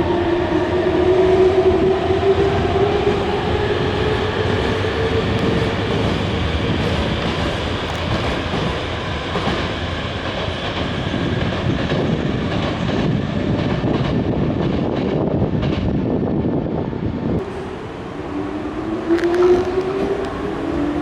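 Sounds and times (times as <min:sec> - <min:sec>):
electric train rumbling: 0:00.0 - 0:21.0
wheels clacking over rail joints: 0:05.3 - 0:15.9.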